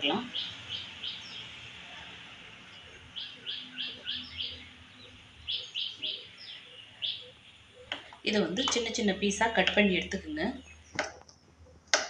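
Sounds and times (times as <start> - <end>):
small bird chirping: 0.0 - 1.5, 2.7 - 9.2.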